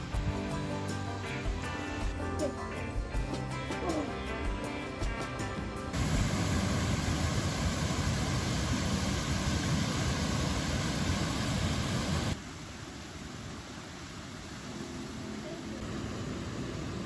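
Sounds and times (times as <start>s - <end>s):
background music: 0.0s - 7.1s
rushing noise with low rumble: 5.9s - 12.4s.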